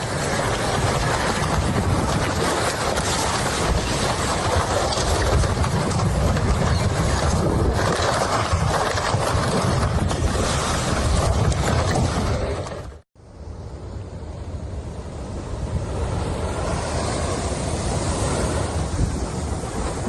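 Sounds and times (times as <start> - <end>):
floodwater rushing: 15.4 - 20.0.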